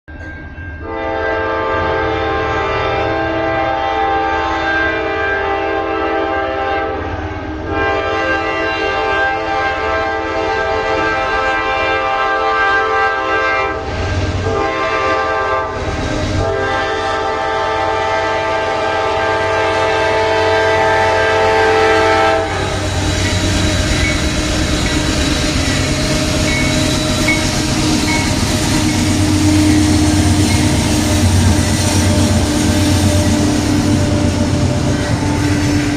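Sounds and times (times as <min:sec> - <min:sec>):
diesel locomotive engine rumble: 0:00.1 - 0:35.9
locomotive horn blasts: 0:00.8 - 0:15.8, 0:16.4 - 0:24.1, 0:25.8 - 0:35.9
wheels on rails: 0:22.4 - 0:35.9.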